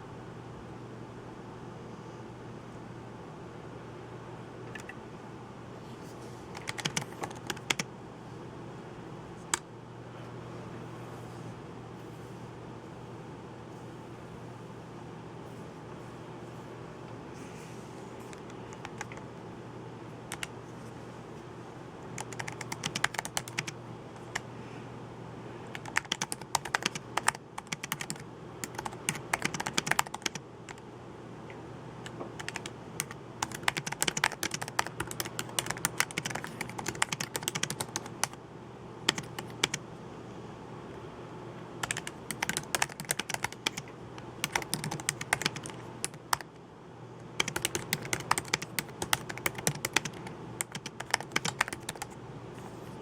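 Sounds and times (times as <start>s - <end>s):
steady low hum: 0.0s - 53.0s
computer keyboard typing: 6.5s - 7.9s, 18.2s - 19.3s, 20.3s - 20.6s, 22.2s - 24.4s, 25.7s - 30.8s, 32.0s - 38.4s, 39.1s - 39.8s, 41.8s - 46.5s, 47.2s - 52.2s.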